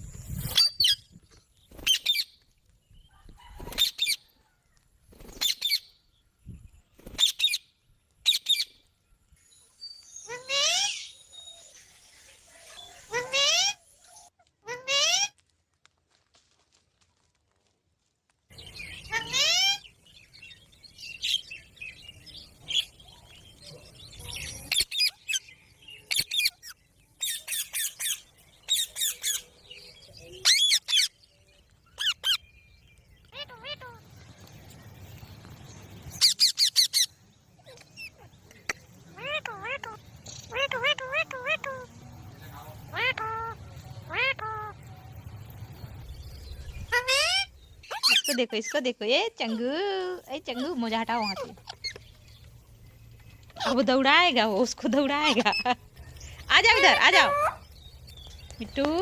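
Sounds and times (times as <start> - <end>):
parrot squawking: 10.3 - 11.1, 13.1 - 13.8, 19.1 - 19.8, 33.4 - 34.0, 36.2 - 37.1, 39.1 - 41.9, 42.9 - 44.8, 46.8 - 48.8, 50.5 - 52.0, 56.4 - 57.7
parrot screeching calls: 13.1 - 13.8, 19.1 - 19.8, 42.9 - 44.8, 46.9 - 48.6, 56.5 - 57.6.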